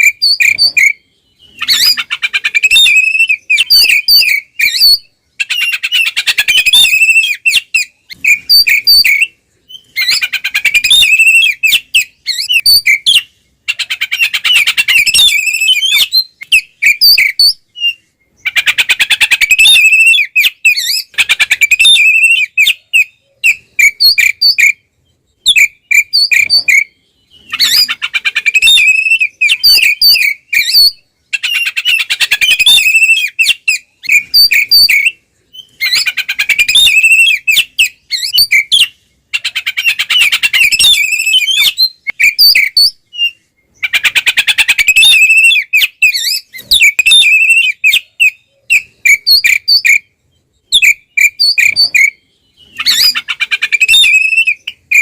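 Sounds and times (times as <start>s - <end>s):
bird chattering: 0.0s - 55.0s
bird singing whistled notes: 0.0s - 55.0s.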